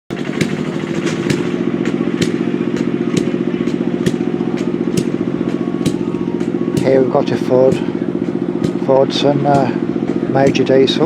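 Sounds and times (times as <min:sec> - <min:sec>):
diesel tractor engine idling: 0:00.1 - 0:11.0.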